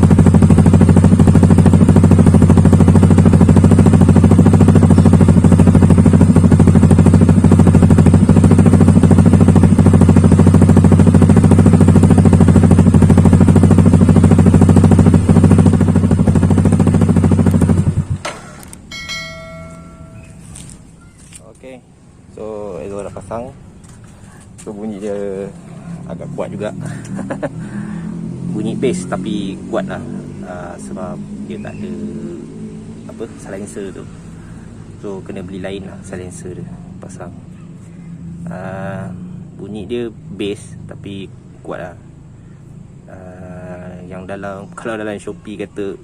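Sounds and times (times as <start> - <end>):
scooter engine idling loudly: 0.0 - 20.4.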